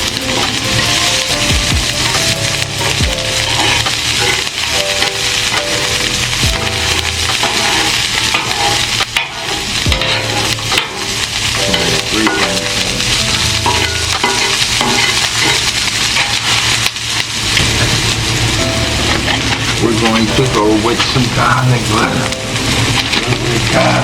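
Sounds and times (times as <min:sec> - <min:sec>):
spatula scraping a griddle: 0:00.0 - 0:18.1
vegetables sizzling on a griddle: 0:00.0 - 0:24.0.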